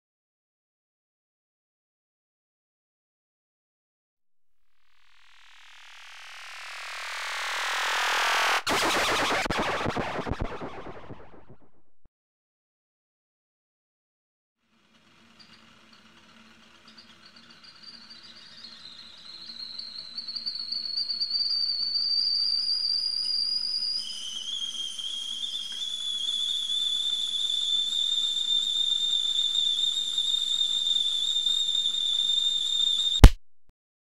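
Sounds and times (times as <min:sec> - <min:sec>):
high whistling tone: 0:04.9 - 0:11.9, 0:17.7 - 0:33.4
hiss: 0:22.8 - 0:33.2.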